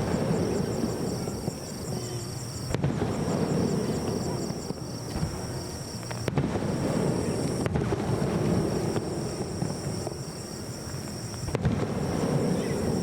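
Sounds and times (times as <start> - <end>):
fireworks bursting: 0.0 - 13.0
low rumble of launches: 0.0 - 13.0.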